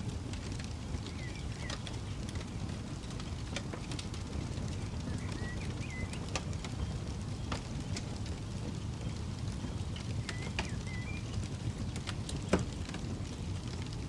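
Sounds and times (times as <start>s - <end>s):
campfire crackling: 0.0s - 14.0s
bird chirping: 1.0s - 1.9s, 5.0s - 6.2s, 10.2s - 11.4s.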